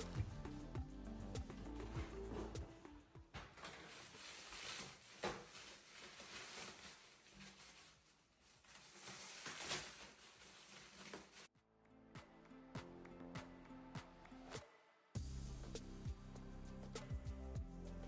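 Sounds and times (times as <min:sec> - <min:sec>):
faint rustling and handling: 0:01.4 - 0:11.5.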